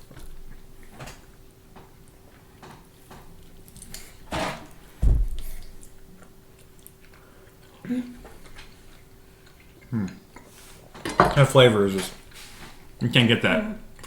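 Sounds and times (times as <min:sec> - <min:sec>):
dull low thump: 0:05.0 - 0:05.5
person chewing with mouth clicks: 0:05.5 - 0:10.5.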